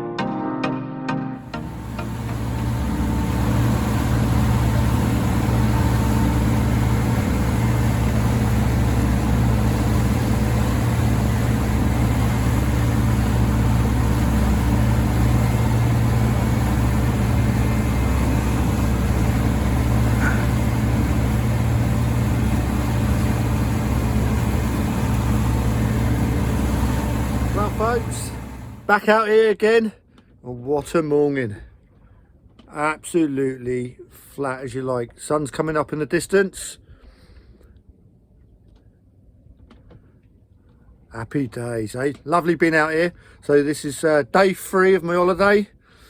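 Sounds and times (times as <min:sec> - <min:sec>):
motorboat engine running: 0:01.5 - 0:28.9
rushing water noise: 0:01.6 - 0:28.9.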